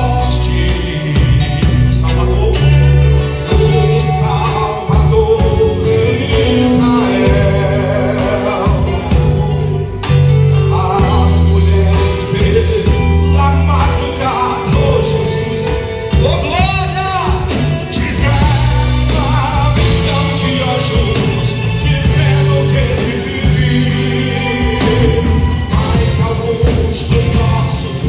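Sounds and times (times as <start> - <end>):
bass line: 0.0 - 28.0
drums: 0.0 - 28.0
people singing: 3.4 - 9.9, 17.9 - 28.0.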